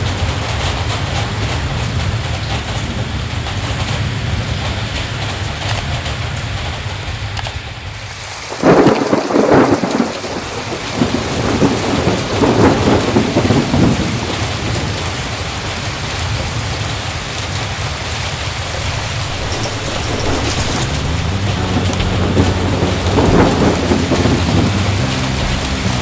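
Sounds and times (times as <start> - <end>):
heavy rain: 0.0 - 26.0
thunder rumbling: 8.5 - 15.8, 18.2 - 26.0.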